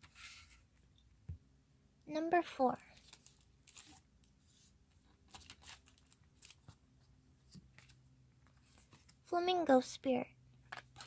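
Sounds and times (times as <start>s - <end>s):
cards rustling and tapping: 10.6s - 11.0s.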